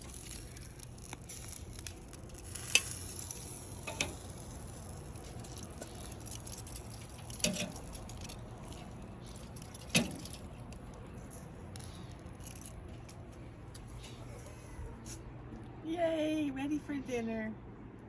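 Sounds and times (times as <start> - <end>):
food sizzling on a grill: 0.0 - 8.1.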